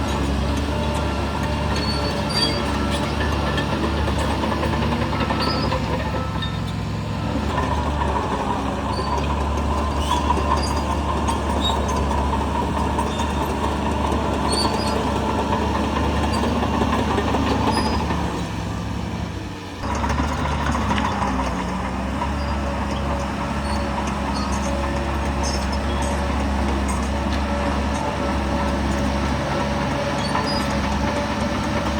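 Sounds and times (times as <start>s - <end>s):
heavy diesel machinery running: 0.0s - 31.9s
clanks of metal and stone: 22.8s - 28.1s.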